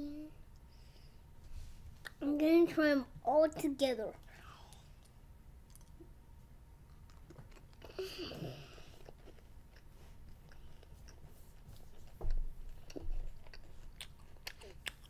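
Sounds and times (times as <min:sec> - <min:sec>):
child chewing: 0:04.2 - 0:06.1, 0:06.8 - 0:15.0.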